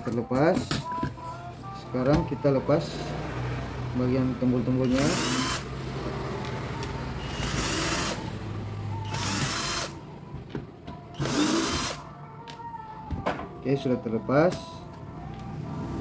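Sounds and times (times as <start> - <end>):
electric screwdriver running: 4.8 - 5.7, 6.8 - 8.2, 9.0 - 10.0, 11.2 - 12.0.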